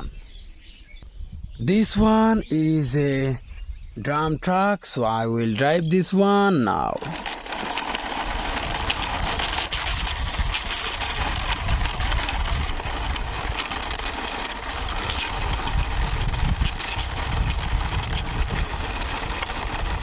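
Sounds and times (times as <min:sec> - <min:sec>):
toy truck wheels rolling on wall: 0:06.2 - 0:20.0.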